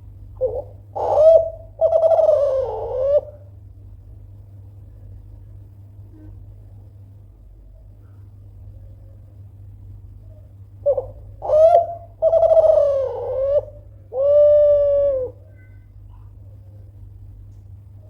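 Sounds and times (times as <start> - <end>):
dove cooing: 0.4 - 3.5, 10.8 - 15.6.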